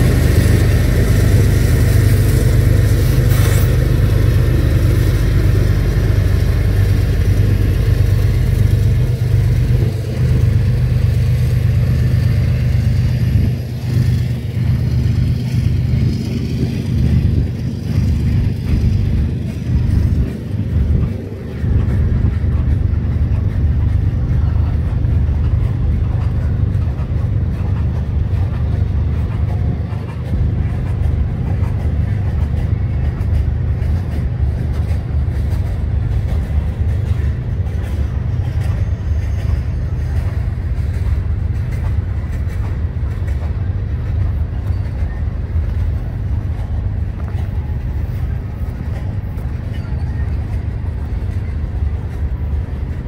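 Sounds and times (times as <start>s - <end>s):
freight train wheels rumbling: 0.0s - 53.0s.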